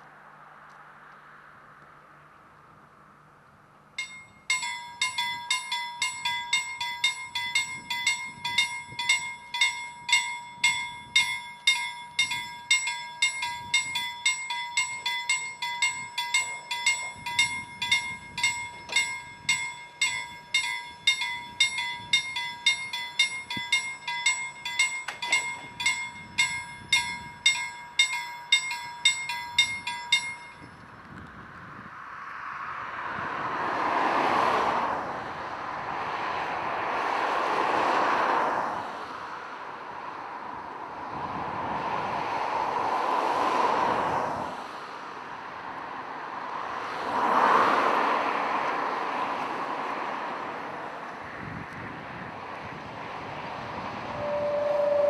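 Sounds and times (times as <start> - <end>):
bell striking: 4.0 - 30.8.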